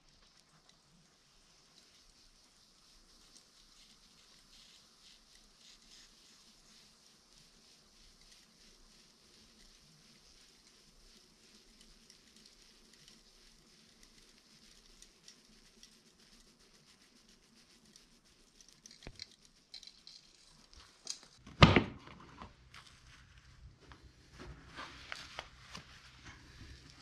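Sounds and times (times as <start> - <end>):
loud knock: 21.5 - 22.0.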